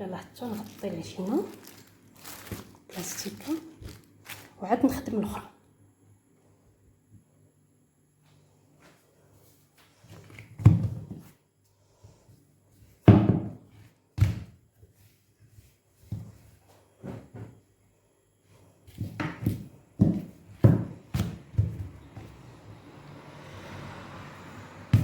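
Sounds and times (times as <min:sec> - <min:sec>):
dough kneading thumps: 0:18.8 - 0:22.6.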